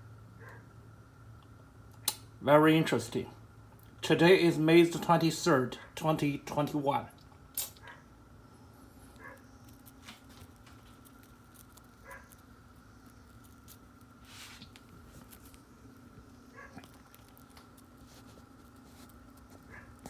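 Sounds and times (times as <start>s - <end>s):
faint steady hum: 0.0s - 20.0s
faint clicks and rustles: 9.0s - 20.0s.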